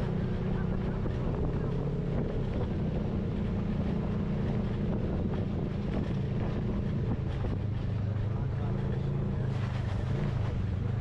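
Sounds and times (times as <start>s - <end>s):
wind noise on microphone: 0.0s - 8.4s
engine running steadily: 0.0s - 11.0s.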